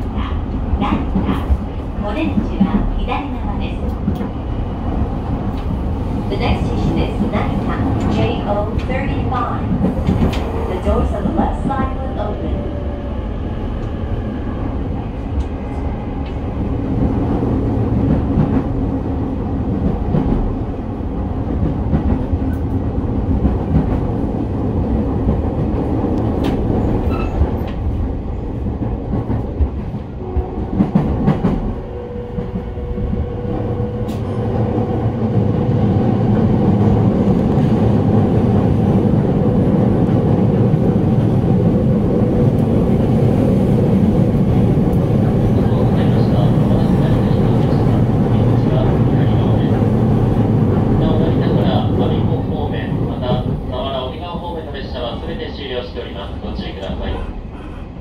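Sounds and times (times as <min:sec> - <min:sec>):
track clacks: 0:05.2 - 0:12.4.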